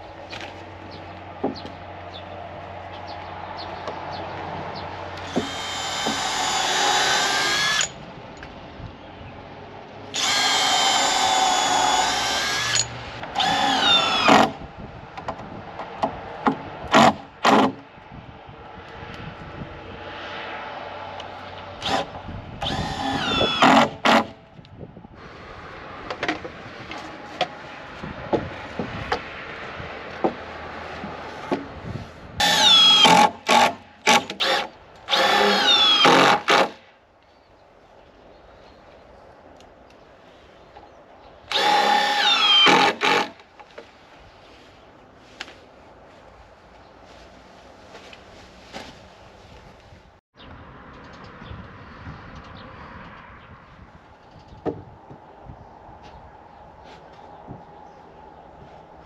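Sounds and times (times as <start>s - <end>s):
power drill whining: 5.2s - 8.0s, 10.2s - 14.6s, 21.8s - 24.0s, 32.4s - 36.8s, 41.5s - 43.4s.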